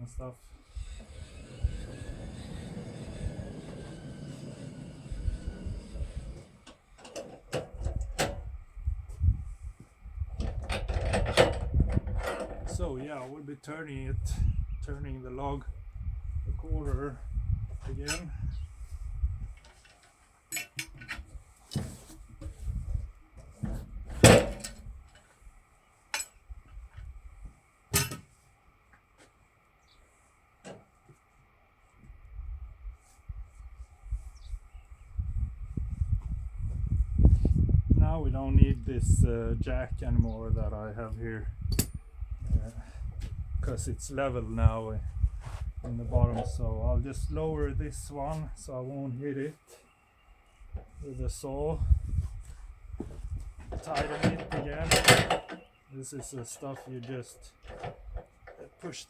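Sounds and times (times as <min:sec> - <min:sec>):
metallic clanks and knocks: 0:06.6 - 0:08.4, 0:10.4 - 0:12.8, 0:23.6 - 0:24.9, 0:27.9 - 0:28.3, 0:53.7 - 0:56.9, 0:57.6 - 0:58.6
sharp knocks and clanks: 0:23.6 - 0:24.8, 0:53.7 - 0:55.7.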